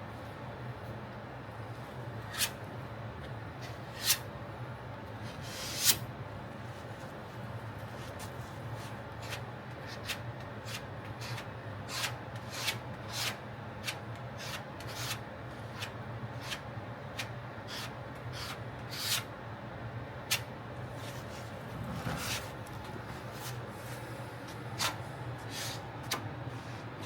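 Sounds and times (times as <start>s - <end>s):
spreader scraping filler: 20.3s - 27.0s.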